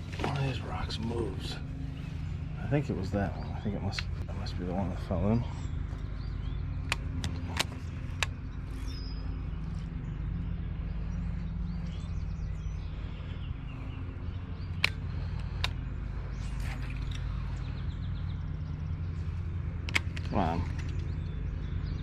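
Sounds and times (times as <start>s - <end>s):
small birds chirping: 0.0s - 22.0s
steady low rumble: 0.0s - 22.0s
sharp clicks: 6.7s - 9.0s, 14.6s - 17.6s, 19.6s - 21.4s.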